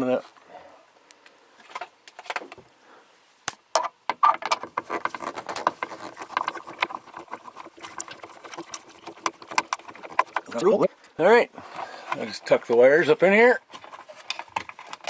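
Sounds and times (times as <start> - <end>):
wires rustling and clicking: 4.2 - 15.0.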